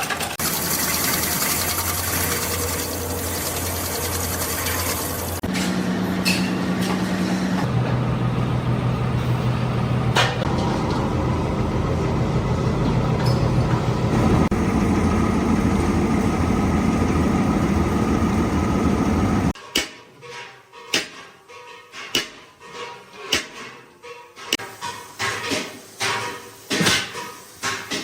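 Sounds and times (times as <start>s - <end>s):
machine motor humming: 7.7s - 19.6s.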